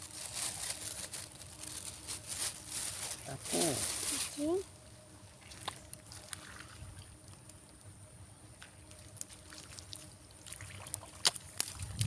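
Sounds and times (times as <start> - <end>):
steady high hum: 0.0 - 12.0
faint trickling water: 8.6 - 12.0.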